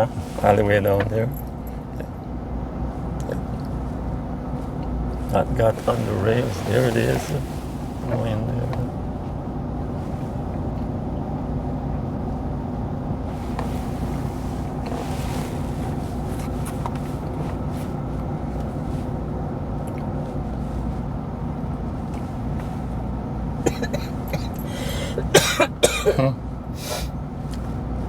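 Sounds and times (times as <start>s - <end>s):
car road and engine noise: 0.0s - 28.0s
person coughing: 23.7s - 26.4s.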